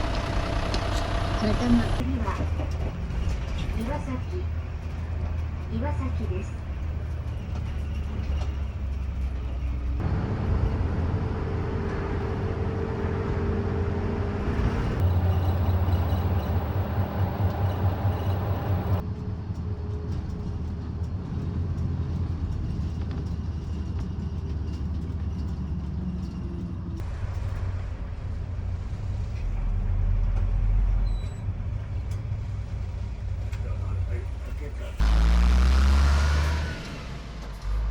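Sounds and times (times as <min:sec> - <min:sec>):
deep rumble: 0:00.0 - 0:02.0, 0:10.0 - 0:19.1, 0:34.9 - 0:37.9
engines humming: 0:00.0 - 0:02.1, 0:06.8 - 0:28.1, 0:34.7 - 0:37.9.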